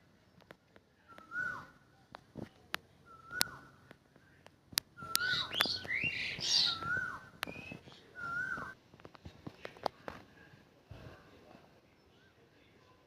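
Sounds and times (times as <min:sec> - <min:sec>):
myna birds whistling: 0:03.1 - 0:03.8, 0:05.0 - 0:08.8
harsh bird chatter: 0:05.0 - 0:08.1.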